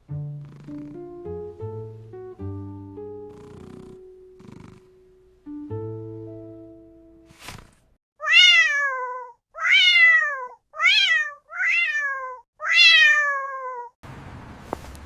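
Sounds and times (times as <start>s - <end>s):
cat meowing: 8.2s - 14.0s.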